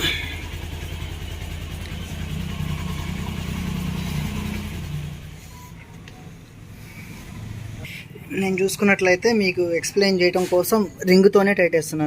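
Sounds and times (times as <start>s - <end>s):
engine idling: 0.0s - 8.3s.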